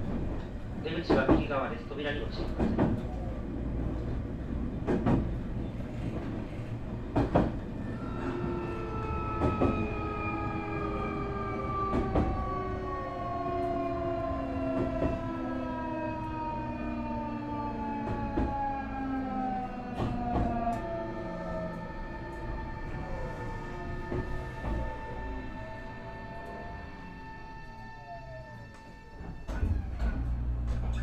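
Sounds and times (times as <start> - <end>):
wheel clacks at rail joints: 0.0 - 3.3, 3.9 - 15.5
train running rumble: 0.0 - 31.0.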